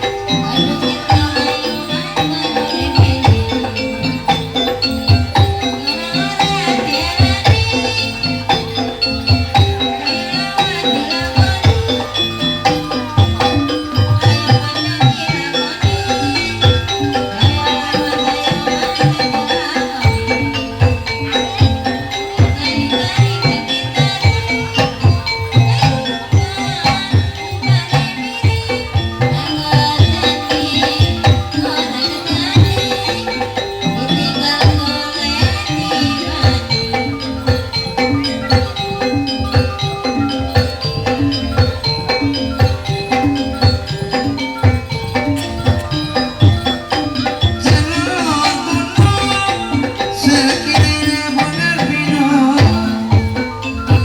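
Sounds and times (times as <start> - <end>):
gamelan-style ensemble playing: 0.0 - 54.0
hand-drum strokes: 0.0 - 54.0
ringing metallophone notes: 0.0 - 54.0
wavering melody line: 0.0 - 54.0.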